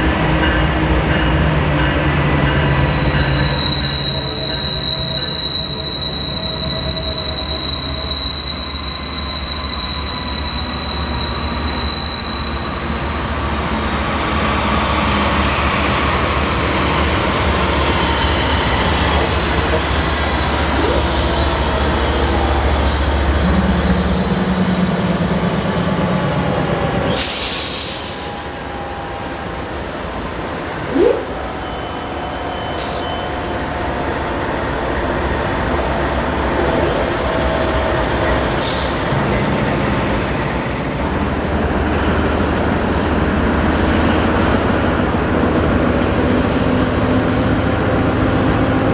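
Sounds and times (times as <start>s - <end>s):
diesel locomotive rumble: 0.0s - 48.9s
faint wheel squeal: 2.7s - 15.3s, 16.0s - 24.0s, 26.8s - 41.5s
short hissing: 30.9s - 31.6s.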